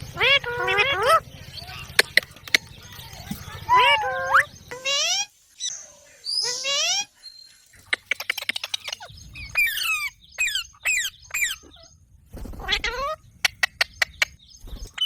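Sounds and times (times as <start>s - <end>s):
parrot squawking: 0.0s - 5.3s, 6.3s - 7.1s, 7.8s - 12.0s.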